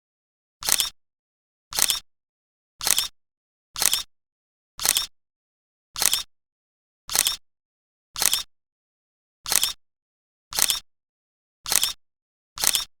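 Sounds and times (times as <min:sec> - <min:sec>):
camera shutter clicking: 0:00.6 - 0:01.0, 0:01.7 - 0:02.0, 0:02.8 - 0:03.1, 0:03.8 - 0:04.1, 0:04.8 - 0:05.1, 0:06.0 - 0:06.3, 0:07.1 - 0:07.4, 0:08.2 - 0:08.5, 0:09.5 - 0:09.8, 0:10.5 - 0:10.8, 0:11.7 - 0:12.0, 0:12.6 - 0:12.9.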